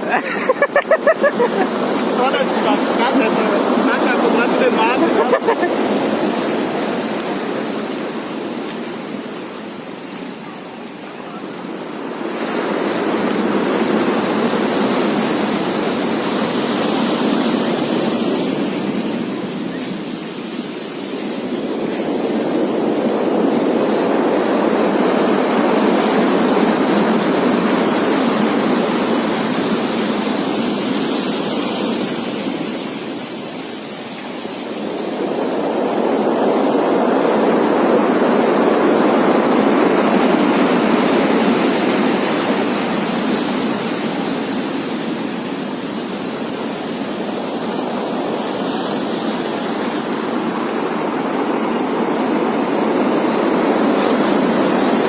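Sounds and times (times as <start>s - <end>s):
heavy rain: 0.0s - 12.3s
wind: 0.0s - 55.0s.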